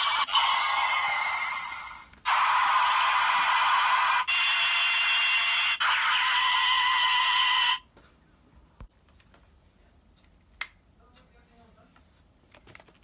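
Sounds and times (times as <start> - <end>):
electronic toy sound effects: 0.0 - 7.8.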